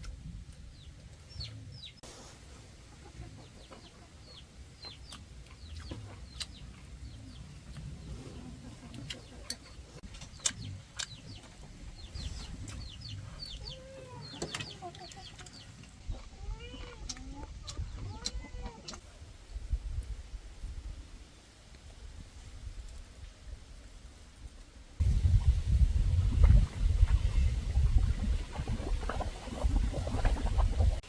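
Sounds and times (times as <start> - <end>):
chickens clucking: 2.5 - 19.0.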